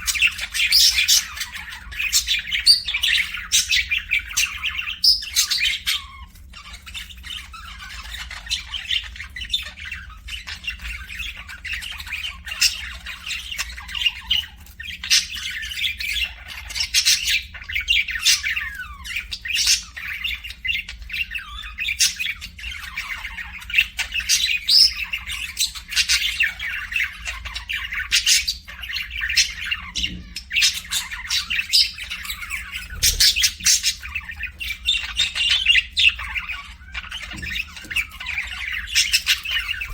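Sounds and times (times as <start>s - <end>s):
parrots chattering: 0.0s - 39.9s
parrots squawking: 0.0s - 39.9s.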